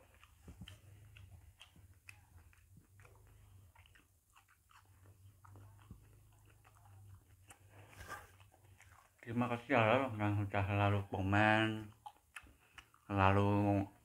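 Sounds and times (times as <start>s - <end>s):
wet mouth clicks: 0.0s - 9.6s, 11.7s - 13.1s
person chewing: 0.0s - 14.0s.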